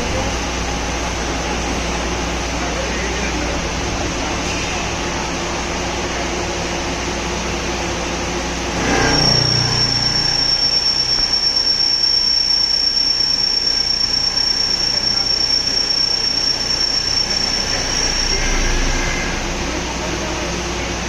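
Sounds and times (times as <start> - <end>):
drilling machine running: 3.1 - 21.0
high-pitched machine squeal: 8.7 - 19.7.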